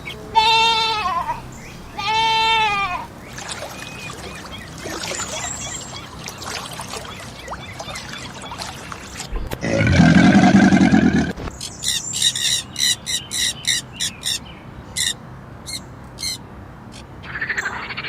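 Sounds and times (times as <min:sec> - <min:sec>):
animal bleating: 0:00.0 - 0:03.1.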